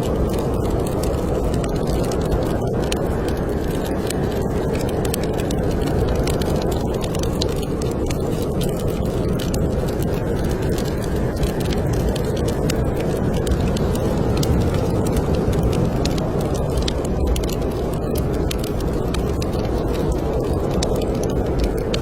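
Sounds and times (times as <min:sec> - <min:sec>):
wood fire crackling: 0:00.0 - 0:22.0
wind blowing: 0:07.8 - 0:22.0.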